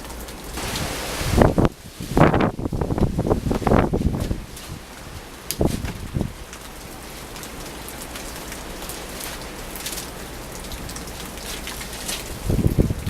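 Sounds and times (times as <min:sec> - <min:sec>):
rain and snow hitting surfaces: 0:00.0 - 0:13.0
wind gust on microphone: 0:00.6 - 0:06.5, 0:12.3 - 0:13.0.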